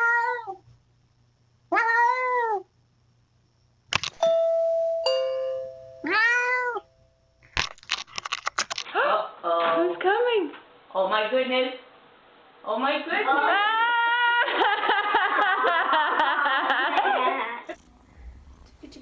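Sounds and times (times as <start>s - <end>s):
cat meowing: 0.0s - 0.6s, 1.7s - 2.7s, 6.0s - 6.8s
ringing chime-like tone: 4.2s - 6.1s.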